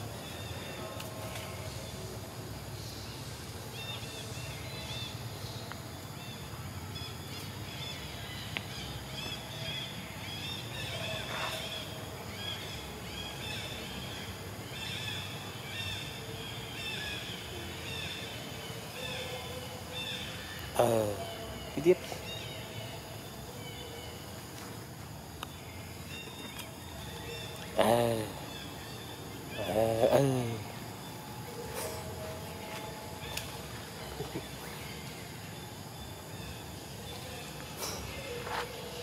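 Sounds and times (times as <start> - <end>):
birds chirping: 0.0 - 39.0
low background noise: 0.0 - 39.0.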